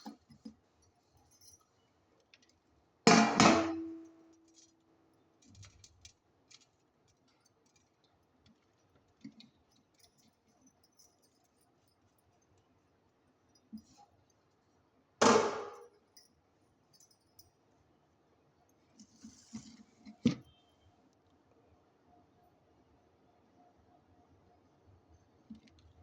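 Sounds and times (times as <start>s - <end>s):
light clinks and taps: 0.0s - 2.6s, 4.0s - 12.7s, 13.5s - 14.6s, 15.8s - 17.6s.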